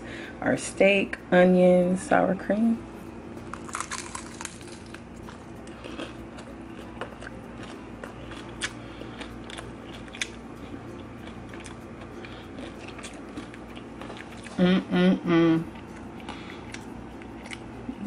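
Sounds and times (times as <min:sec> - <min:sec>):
low steady hum: 0:00.0 - 0:18.0
crunchy taco chewing: 0:03.4 - 0:14.6, 0:15.7 - 0:18.0.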